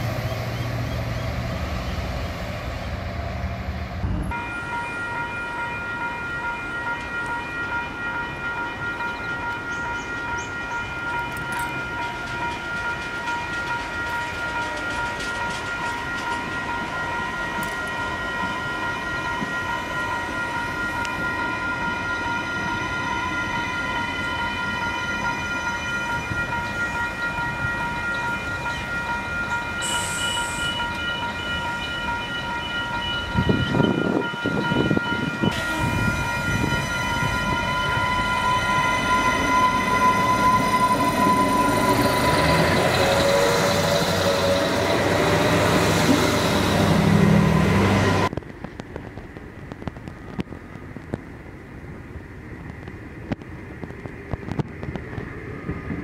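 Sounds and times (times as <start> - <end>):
railcar rumbling past: 0.0 - 56.0
high-pitched ringing tone: 4.3 - 44.8.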